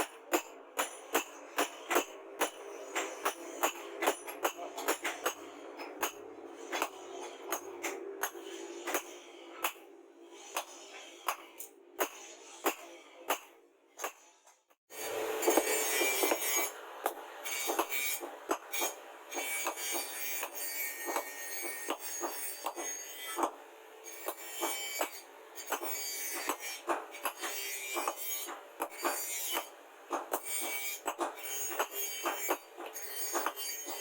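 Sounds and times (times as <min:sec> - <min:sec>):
hand tool scraping steel blade: 0:15.4 - 0:16.7, 0:24.1 - 0:34.0.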